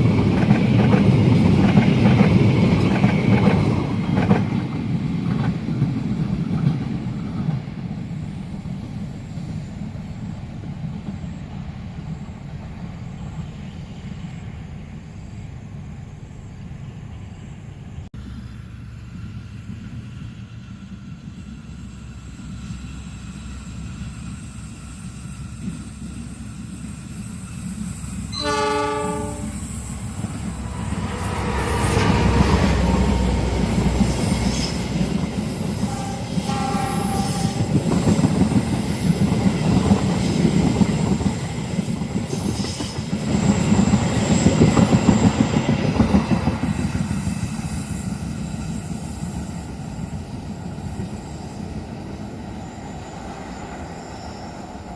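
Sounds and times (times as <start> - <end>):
wheels clattering on rails: 0.0 - 8.9
train passing at speed: 0.0 - 54.9
high wheel squeal: 19.3 - 54.9
train horn: 28.3 - 29.9, 35.7 - 37.8.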